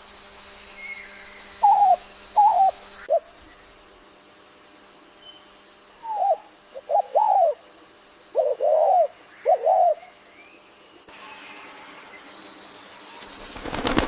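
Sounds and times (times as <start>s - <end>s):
bird calling: 0.8s - 3.8s, 5.2s - 10.8s.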